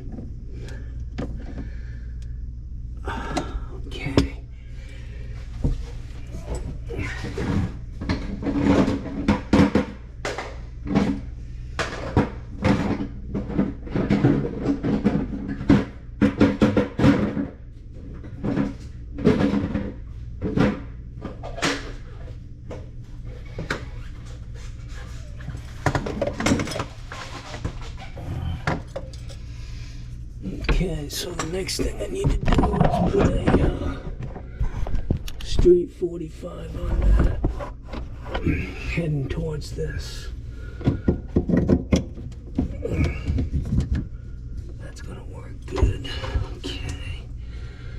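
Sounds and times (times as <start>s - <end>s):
plastic pipe knocking and clattering: 8.0s - 17.6s, 40.7s - 44.1s.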